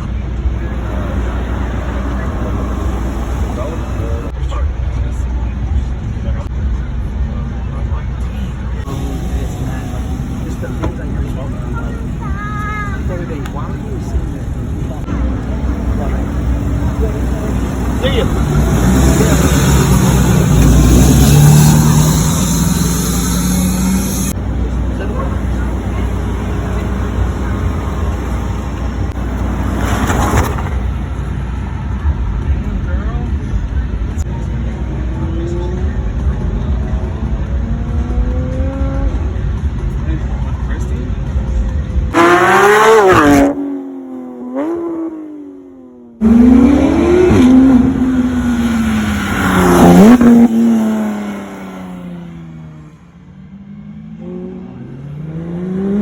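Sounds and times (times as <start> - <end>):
people talking: 0.0 - 22.6, 24.3 - 29.2, 32.6 - 43.0
car engine rumbling: 0.0 - 56.0.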